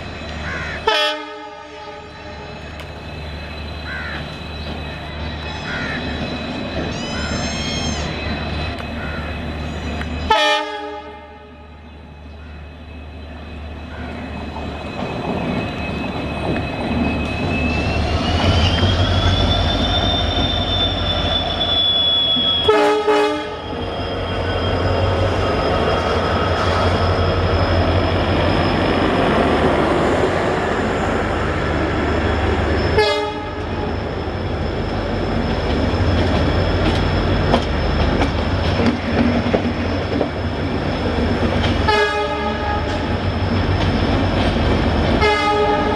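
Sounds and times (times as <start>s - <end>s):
diesel locomotive engine rumble: 0.0s - 45.9s
train horn blasts: 0.8s - 2.6s, 10.3s - 11.8s, 22.6s - 23.7s, 32.9s - 33.9s, 41.9s - 43.1s, 45.2s - 45.9s.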